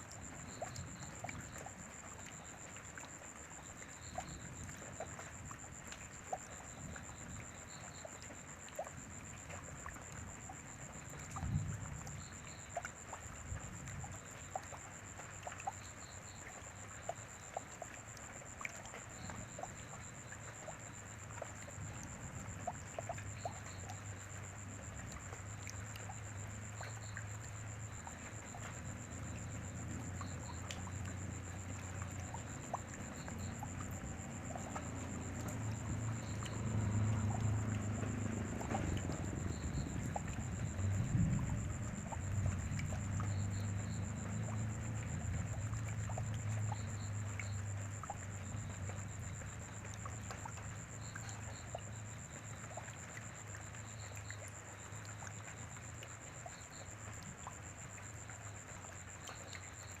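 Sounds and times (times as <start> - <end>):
rain falling: 21.2 - 47.8.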